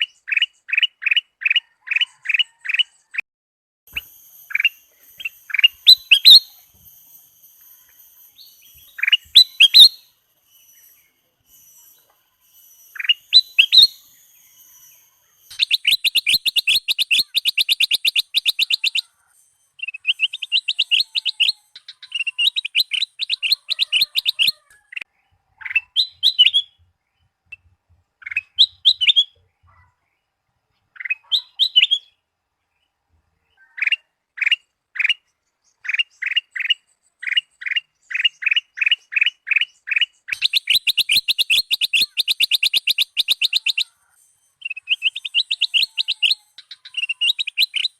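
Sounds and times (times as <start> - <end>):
bird song trills and whistles: 0.0 - 3.2, 3.9 - 32.2, 33.4 - 47.9.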